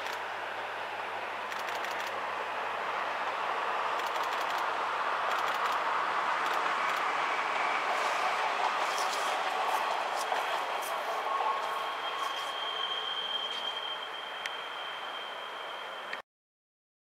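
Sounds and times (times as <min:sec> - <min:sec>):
diesel railcar running: 0:00.0 - 0:16.2.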